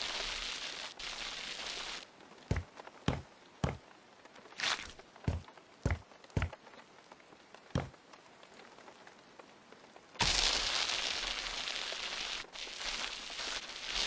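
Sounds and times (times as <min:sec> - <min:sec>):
loud steady hiss: 0:00.0 - 0:02.0, 0:10.2 - 0:14.0
soft thuds: 0:02.5 - 0:03.8, 0:05.3 - 0:06.6, 0:07.8 - 0:08.0.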